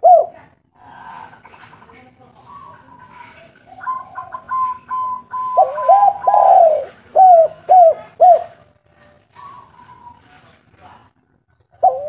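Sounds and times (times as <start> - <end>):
dove cooing: 0.0 - 1.7, 2.4 - 10.3, 11.5 - 12.0.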